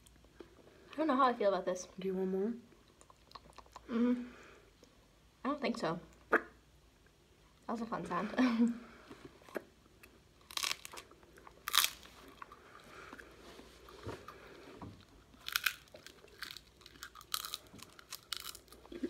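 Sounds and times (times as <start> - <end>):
crunchy cones being chewed: 9.2 - 19.0.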